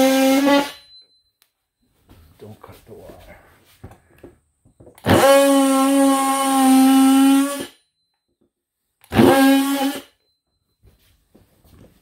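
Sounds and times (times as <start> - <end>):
power saw cutting: 0.0 - 0.8, 5.0 - 7.8, 9.0 - 10.1.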